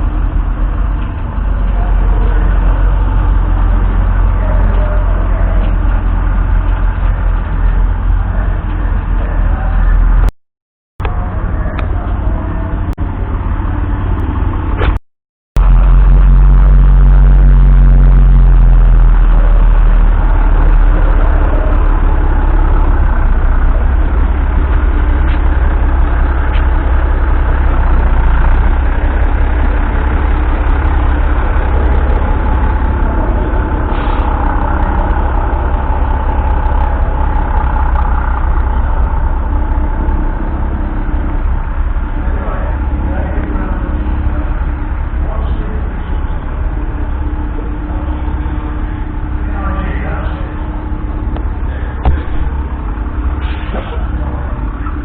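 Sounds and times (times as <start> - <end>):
diesel truck engine running: 0.0 - 10.4, 11.0 - 15.0, 15.6 - 55.0.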